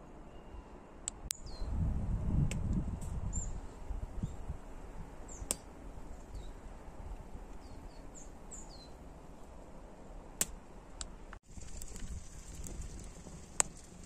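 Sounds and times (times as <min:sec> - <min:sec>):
faint outdoor background: 0:00.0 - 0:14.0
small bird chirping: 0:01.3 - 0:01.8, 0:05.3 - 0:06.6, 0:07.6 - 0:09.0.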